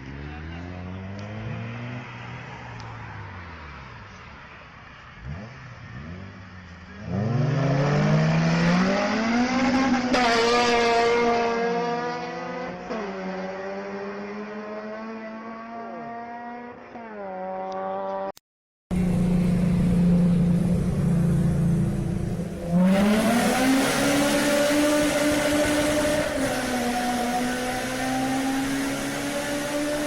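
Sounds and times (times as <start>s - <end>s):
car engine revving high: 7.0s - 18.2s, 18.9s - 30.0s.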